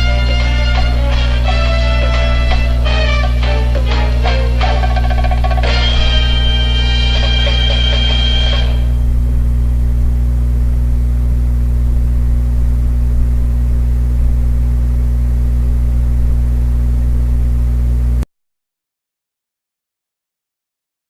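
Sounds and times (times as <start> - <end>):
low musical drone: 0.0 - 10.3.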